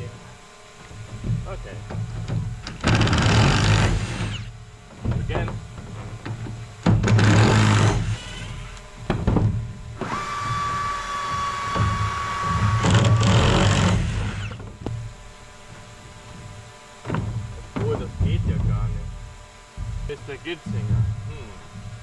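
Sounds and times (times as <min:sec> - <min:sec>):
power drill running: 0:02.6 - 0:04.7, 0:06.8 - 0:09.0, 0:10.0 - 0:16.0.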